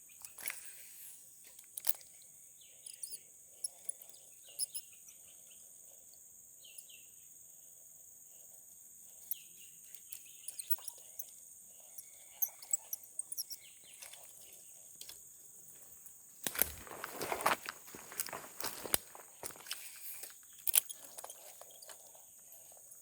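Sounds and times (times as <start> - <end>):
high insect drone: 0.0 - 23.0
small clicks: 1.4 - 2.2, 16.4 - 22.0
bird chirps: 2.1 - 5.6, 9.2 - 11.3
close rustling: 16.4 - 22.0.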